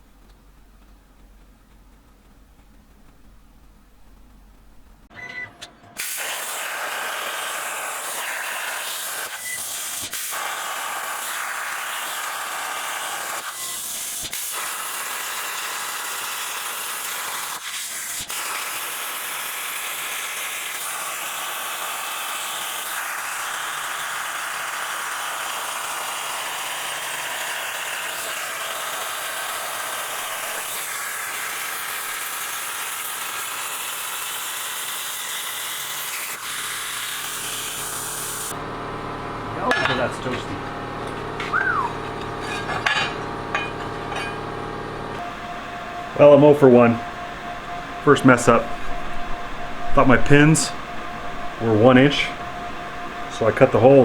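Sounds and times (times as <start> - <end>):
plasma cutter hissing: 6.0 - 38.5.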